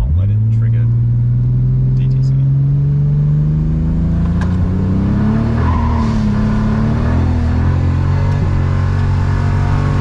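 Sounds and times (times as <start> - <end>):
car engine running under load: 3.5 - 10.0.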